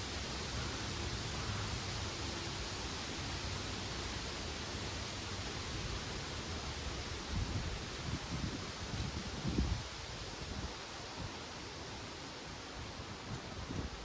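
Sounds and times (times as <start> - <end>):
leaves rustling in wind: 0.0 - 14.0
wind buffeting microphone: 6.9 - 11.4, 13.1 - 14.0.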